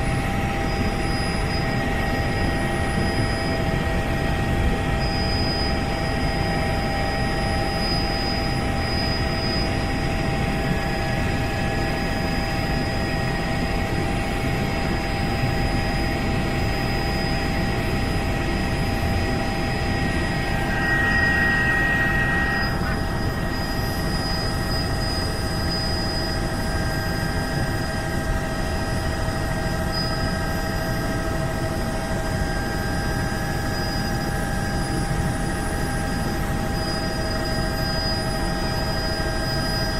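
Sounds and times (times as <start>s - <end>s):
helicopter rumble and whine: 0.0s - 39.9s
brief higher tone: 20.1s - 24.8s.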